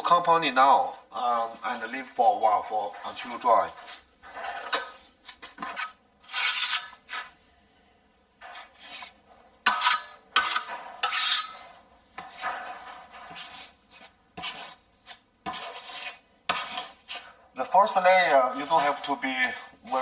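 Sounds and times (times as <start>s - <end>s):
putty knife scraping compound: 0.0s - 7.4s, 8.4s - 20.0s.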